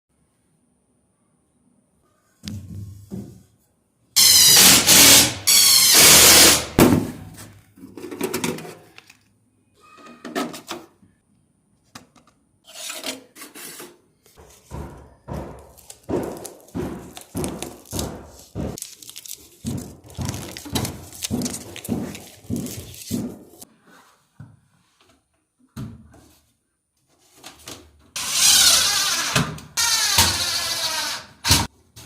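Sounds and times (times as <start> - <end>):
tools knocking and rubbing: 19.6 - 23.7.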